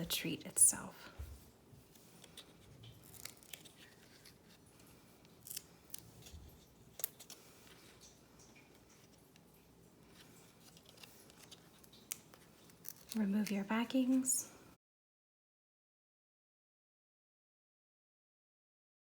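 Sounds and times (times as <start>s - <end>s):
faint paper clicks and snips: 1.8s - 14.3s.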